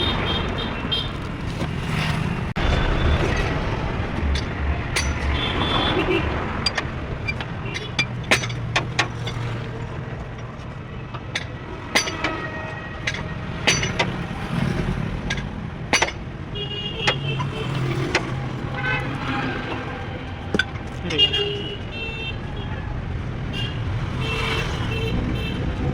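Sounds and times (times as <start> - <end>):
sharp clicks and knocks: 2.6 - 18.8, 19.7 - 21.1.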